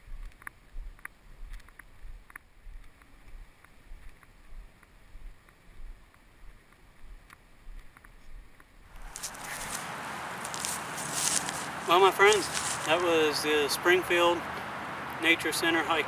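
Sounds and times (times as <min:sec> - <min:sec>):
footsteps on a trail: 0:08.9 - 0:15.0.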